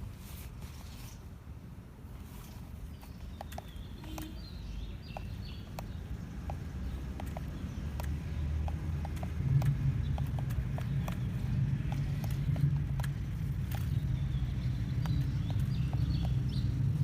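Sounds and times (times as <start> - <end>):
sharp clicks and ticks: 3.0 - 17.0
vehicle motor hum: 3.7 - 17.0.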